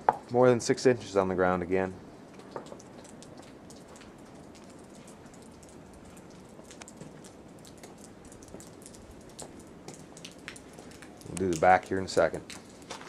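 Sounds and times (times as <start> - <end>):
light ticks and crackles: 0.0 - 13.0.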